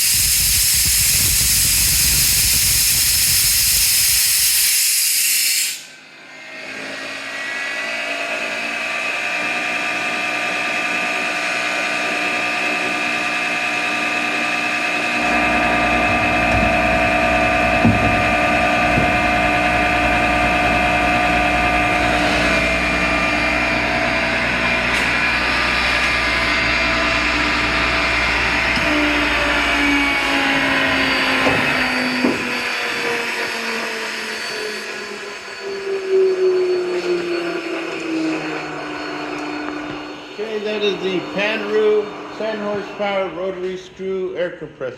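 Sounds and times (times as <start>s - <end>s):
air hiss: 0.0s - 6.0s
air compressor whine: 0.0s - 44.9s
deep hum: 14.6s - 32.7s.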